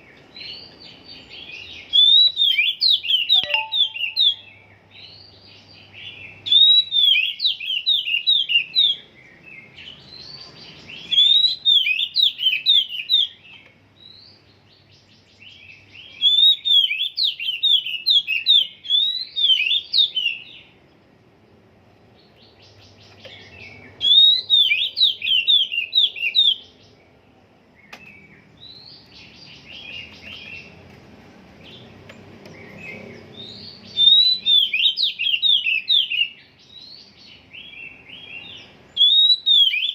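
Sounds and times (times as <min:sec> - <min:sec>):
bird whistling song: 0:00.4 - 0:05.2, 0:06.0 - 0:09.0, 0:09.8 - 0:14.4, 0:15.3 - 0:20.7, 0:23.0 - 0:26.9, 0:32.5 - 0:39.9
soft bird twittering: 0:00.4 - 0:20.8.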